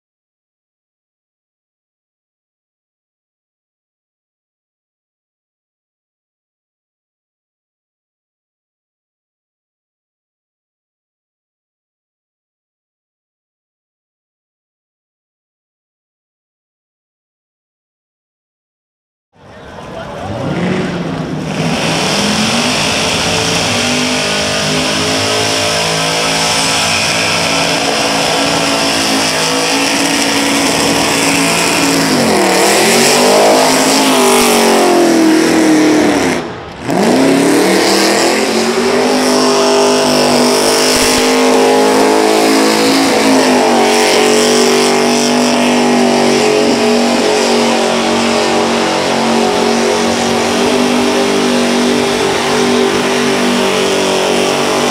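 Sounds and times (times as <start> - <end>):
car engine revving high: 19.8 - 54.9.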